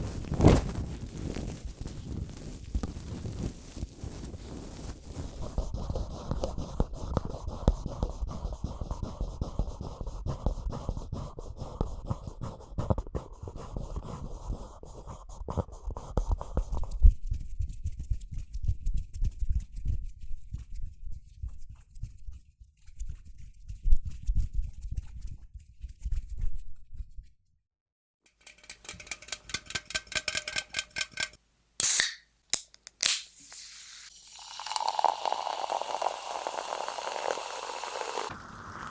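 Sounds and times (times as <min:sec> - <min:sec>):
crackly scratching and brushing: 0:00.0 - 0:06.0.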